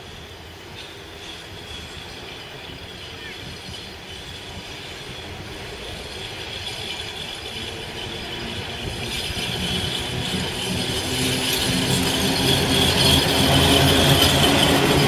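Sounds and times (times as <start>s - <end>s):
locomotive hum: 0.0s - 15.0s
train wheels on rails: 0.0s - 15.0s.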